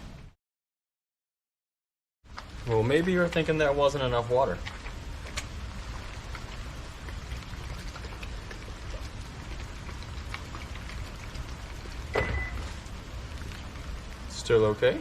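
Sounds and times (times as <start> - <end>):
water pattering on surfaces: 2.3 - 15.0
short high beep: 12.2 - 12.6.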